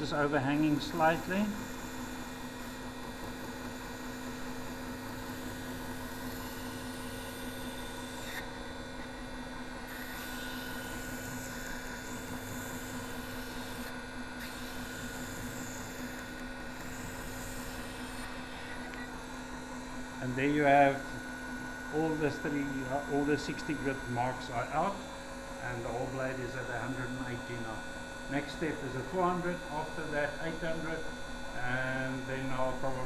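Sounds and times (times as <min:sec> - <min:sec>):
belt grinder humming: 0:00.0 - 0:33.0
knife blade polished on grinder: 0:00.2 - 0:08.4, 0:09.9 - 0:18.8.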